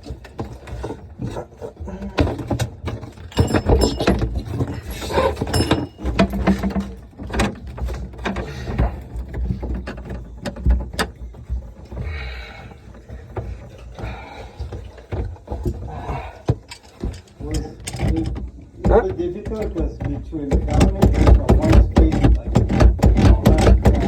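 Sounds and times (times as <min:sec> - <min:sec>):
knocks clunks and scraping: 0:00.0 - 0:24.0.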